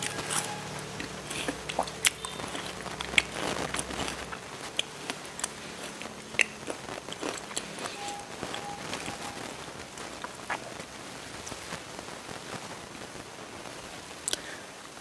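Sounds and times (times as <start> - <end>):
wet mouth clicks and crunches: 0.0 - 8.0
chewing crisp fruit: 0.0 - 10.8.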